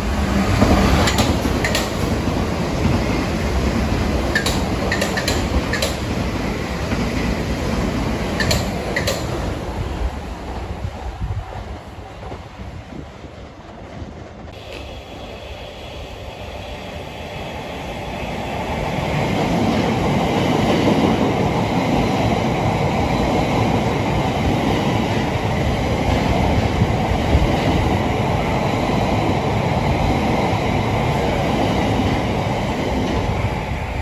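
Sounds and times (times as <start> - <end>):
train wheels rumbling and clattering: 0.0 - 34.0.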